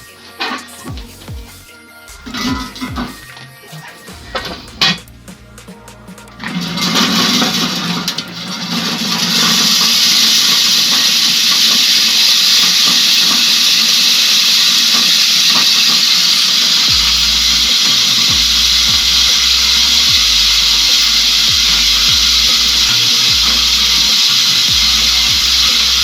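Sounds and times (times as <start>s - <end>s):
music with low bass beat: 0.0s - 8.2s, 16.8s - 26.0s
corn sheller hissing rush: 0.0s - 26.0s.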